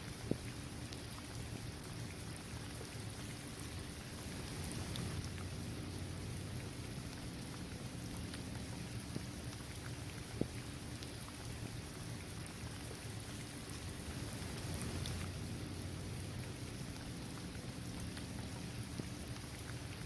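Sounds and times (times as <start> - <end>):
rain falling on pavement: 0.0 - 20.0
raindrops ticking: 14.4 - 20.0.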